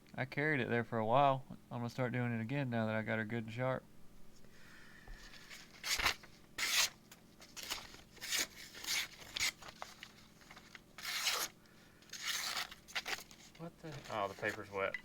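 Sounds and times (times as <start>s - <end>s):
knife slicing paper: 5.8s - 7.0s, 7.6s - 9.8s, 11.0s - 11.5s, 12.1s - 14.7s.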